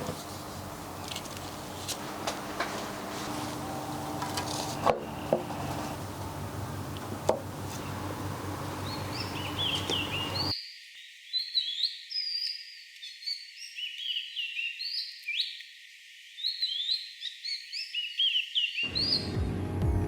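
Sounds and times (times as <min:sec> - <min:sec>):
steady background hum: 0:00.0 - 0:10.5
small birds chirping: 0:00.0 - 0:10.7.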